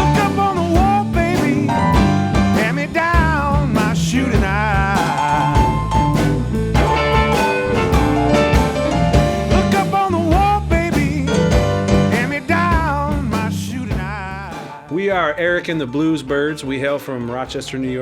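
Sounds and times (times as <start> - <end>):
blues band playing: 0.0 - 18.0.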